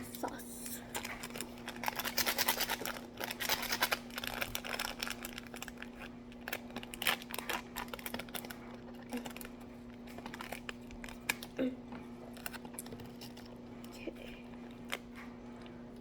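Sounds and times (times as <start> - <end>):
plastic packet crinkling: 0.1 - 11.6, 12.2 - 13.6.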